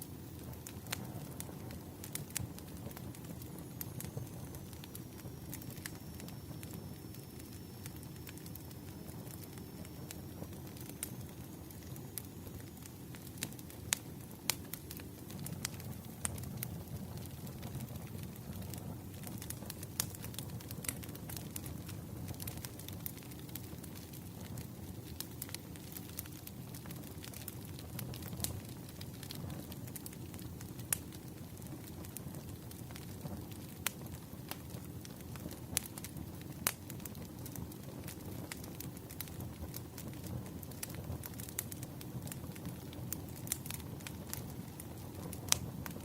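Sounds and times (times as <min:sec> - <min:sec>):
low rumble of flames: 0:00.0 - 0:46.0
wood fire crackling: 0:00.0 - 0:46.0.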